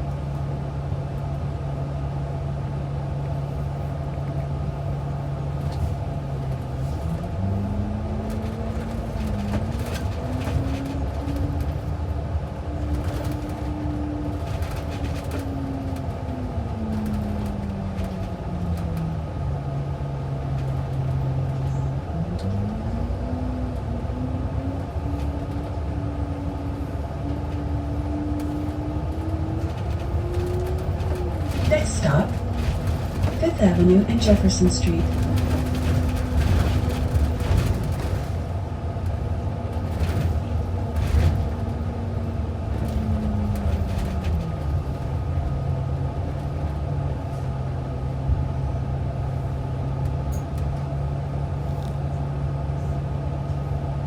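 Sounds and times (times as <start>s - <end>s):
bus engine: 0.0s - 54.0s.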